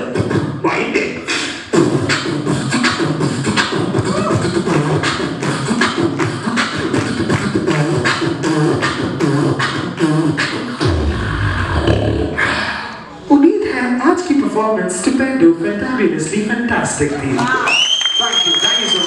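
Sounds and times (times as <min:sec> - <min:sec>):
beatboxing snare and hi-hat clicks: 0:00.0 - 0:11.9
hummed bassline: 0:01.7 - 0:12.5
deep bass note: 0:10.8 - 0:12.6.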